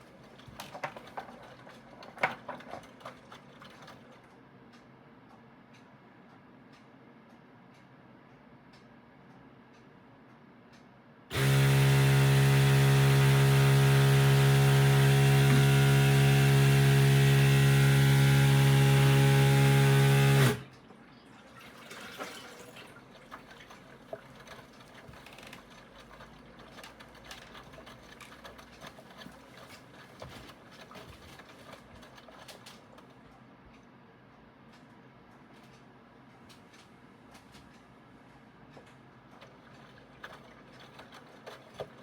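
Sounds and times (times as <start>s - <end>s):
water churning: 0.0s - 4.3s, 21.5s - 33.4s, 39.3s - 42.0s
washing machine motor hum: 11.3s - 33.7s, 37.2s - 42.0s.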